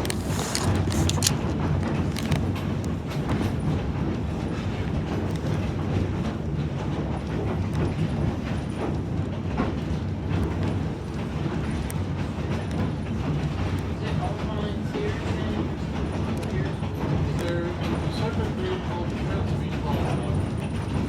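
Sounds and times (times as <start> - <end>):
train wheels rumbling on rails: 0.0 - 21.0
light clicks from track: 10.4 - 20.8.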